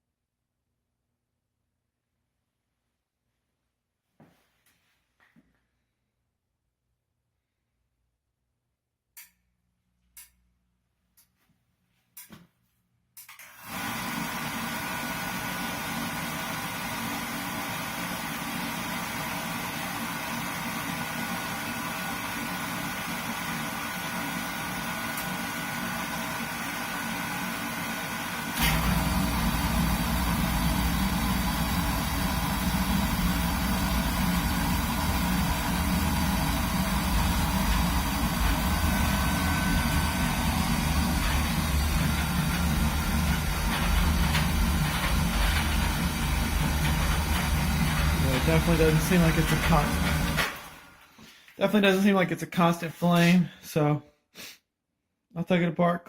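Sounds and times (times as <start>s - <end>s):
burner motor and fan running: 13.6s - 51.1s
burner flame rumble: 28.0s - 50.9s.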